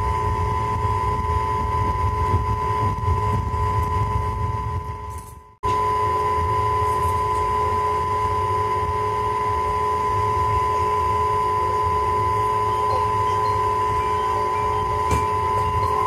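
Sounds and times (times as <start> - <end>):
steady whine: 0.0 - 16.0
train rumbling: 12.6 - 16.0.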